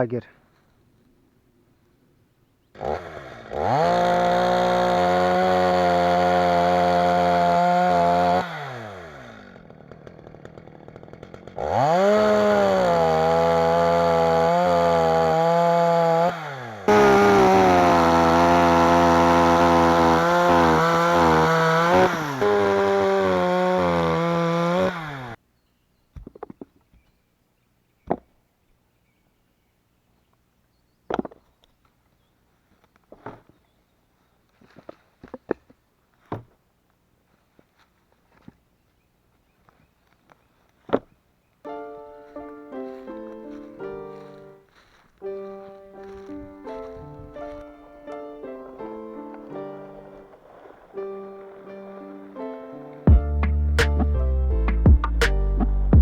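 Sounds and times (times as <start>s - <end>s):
chainsaw revving and sawing wood: 2.7s - 25.4s, 42.3s - 56.0s.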